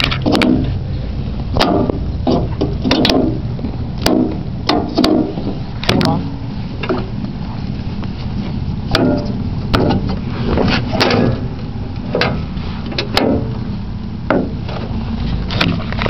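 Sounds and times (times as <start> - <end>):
gear shift clunks: 8.9 - 13.6.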